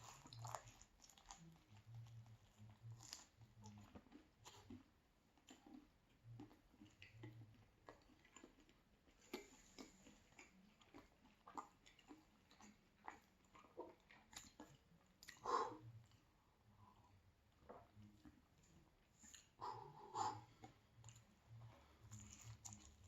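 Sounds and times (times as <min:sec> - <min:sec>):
person chewing: 0:00.0 - 0:23.0.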